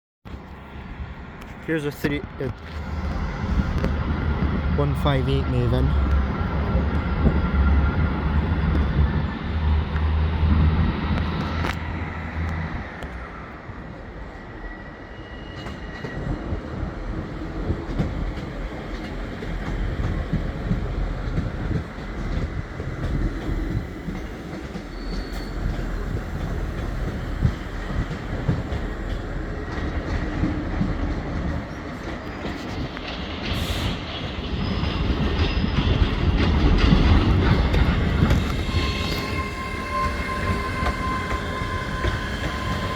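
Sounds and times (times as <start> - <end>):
train wheels rumbling on rail: 0.3 - 42.9
faint wheel squeal: 24.8 - 26.2, 38.4 - 42.9.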